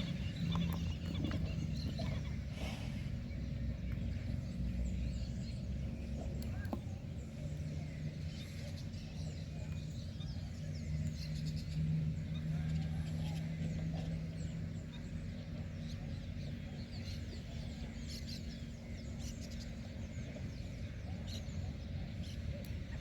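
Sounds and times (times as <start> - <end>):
low rumble: 0.0 - 8.0
birds chirping: 0.0 - 23.0.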